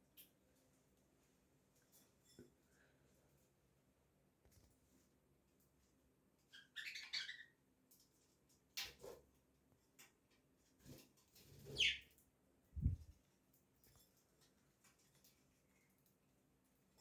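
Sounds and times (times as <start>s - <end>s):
budgerigars chirping: 6.6s - 7.5s, 11.7s - 12.0s.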